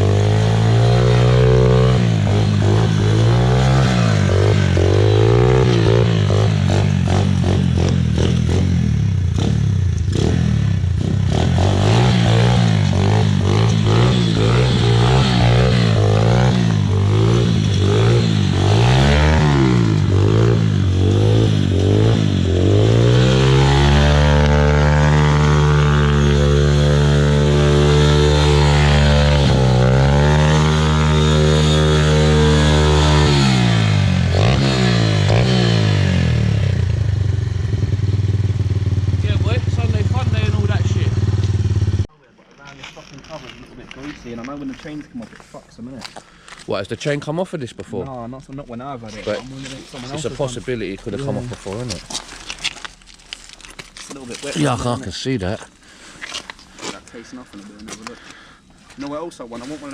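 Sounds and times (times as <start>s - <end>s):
quad engine revving: 0.0s - 42.1s, 49.1s - 52.9s.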